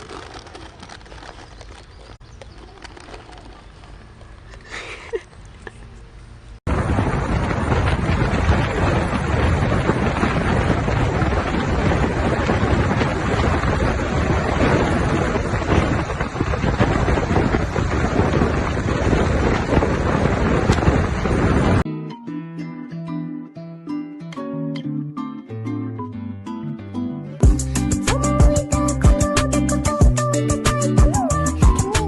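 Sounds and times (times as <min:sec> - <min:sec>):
wind rushing over microphone: 0:06.6 - 0:21.9.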